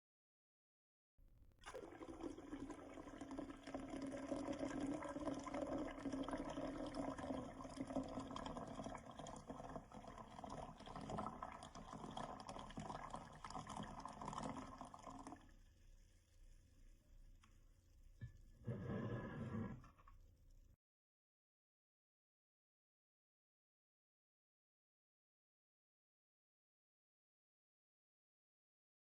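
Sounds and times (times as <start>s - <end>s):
water pouring into glass: 1.6s - 15.6s.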